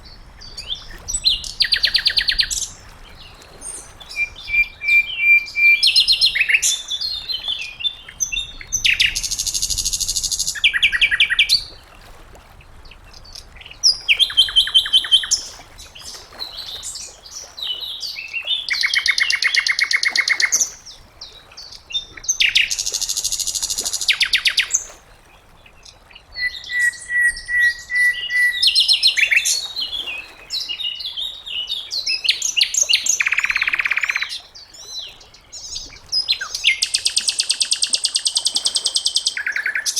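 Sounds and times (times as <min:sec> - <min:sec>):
thin steady bird whistles: 0:03.8 - 0:06.9, 0:26.4 - 0:30.0.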